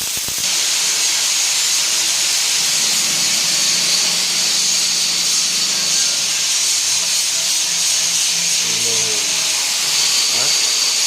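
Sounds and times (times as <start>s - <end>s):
welding hiss: 0.0s - 11.0s
high whine: 0.4s - 11.0s.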